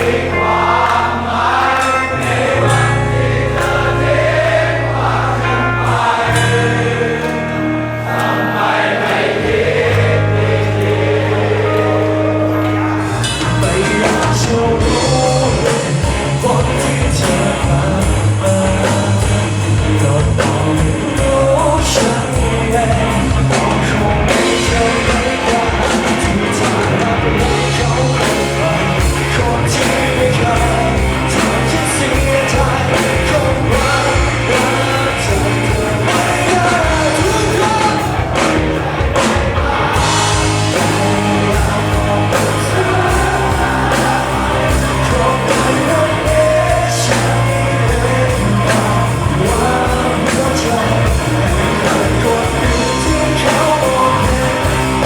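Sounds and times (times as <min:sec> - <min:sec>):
rock band playing: 0:00.0 - 0:55.0
person singing: 0:11.3 - 0:55.0.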